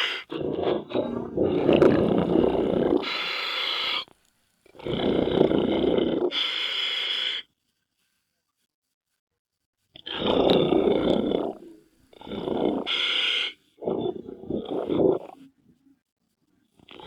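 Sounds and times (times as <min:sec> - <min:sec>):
regulator hissing inhale: 0:00.0 - 0:00.3, 0:03.0 - 0:04.1
exhaled bubbles underwater: 0:00.4 - 0:03.2, 0:13.8 - 0:15.4.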